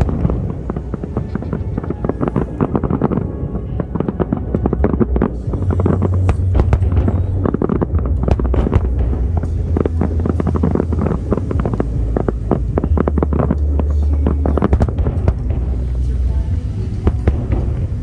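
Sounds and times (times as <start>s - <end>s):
fireworks bangs and crackles: 0.0s - 18.0s
low rumble: 0.0s - 18.0s.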